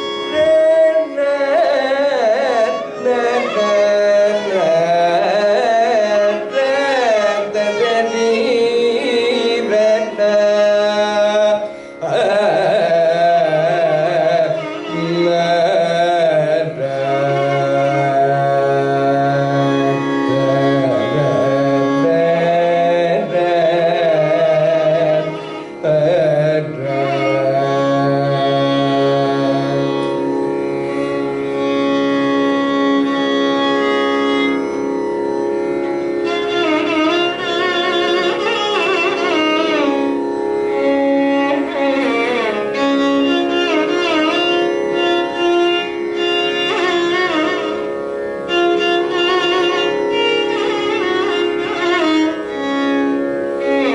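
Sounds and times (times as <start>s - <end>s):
violin: 0.0s - 53.9s
man singing ornamented phrases: 0.3s - 30.1s.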